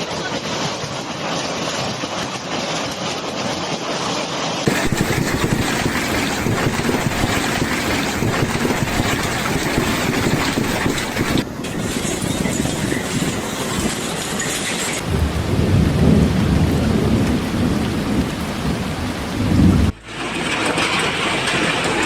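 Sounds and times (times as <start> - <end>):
heavy hail pelting: 4.6 - 22.0.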